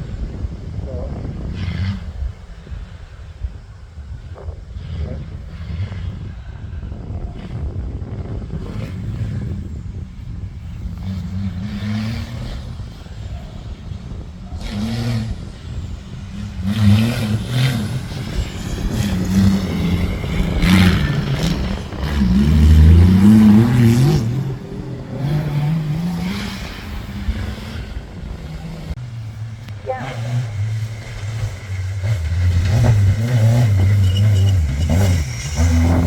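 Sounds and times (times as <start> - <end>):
off-road vehicle engine revving: 0.0 - 36.0
sharp bursts of terrain noise: 0.0 - 36.0.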